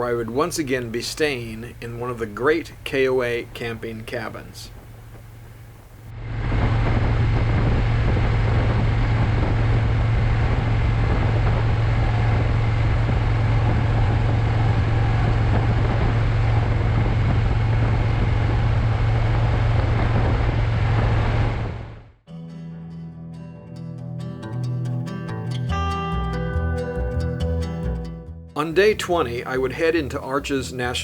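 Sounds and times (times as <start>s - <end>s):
motorcycle engine drone: 4.5s - 22.2s
loud wind noise: 4.6s - 22.2s.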